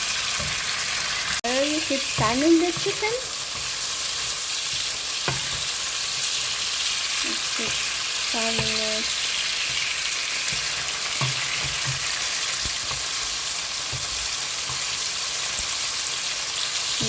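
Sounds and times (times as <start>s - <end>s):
chicken sizzling in oil: 0.0s - 17.0s
utensil knocking and scraping pan: 1.8s - 6.5s, 9.6s - 13.2s.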